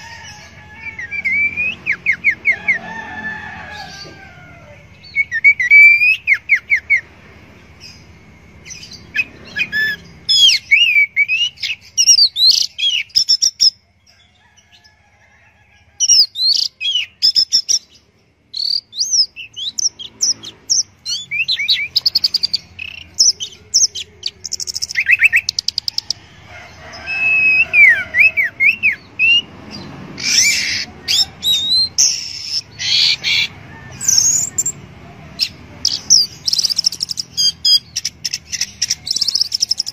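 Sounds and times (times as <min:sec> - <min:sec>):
thrush singing: 0:16.1 - 0:39.9.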